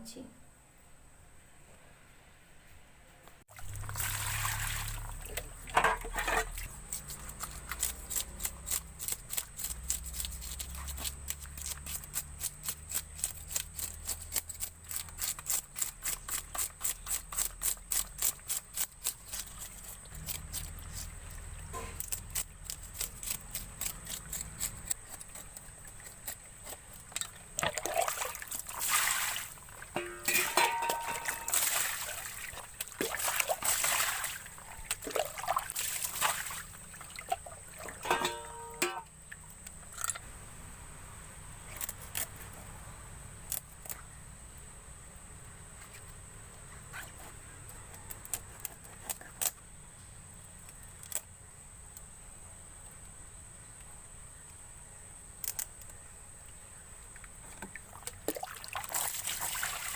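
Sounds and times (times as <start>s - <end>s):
water splashing and sloshing: 3.5s - 7.9s, 26.6s - 39.4s, 57.5s - 59.9s.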